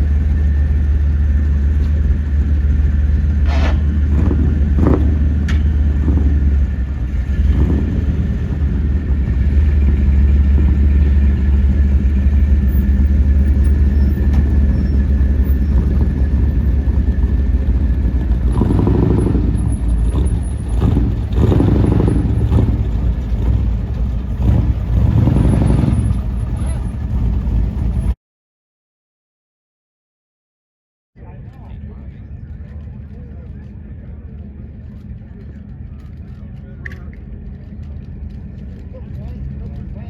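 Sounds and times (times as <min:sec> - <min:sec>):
car engine idling: 0:00.0 - 0:28.2.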